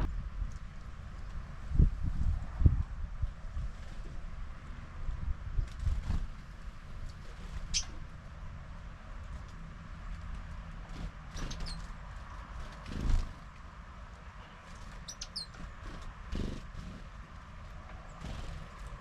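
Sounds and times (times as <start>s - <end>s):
small birds chirping: 7.0s - 8.0s, 11.0s - 12.0s, 14.3s - 17.1s.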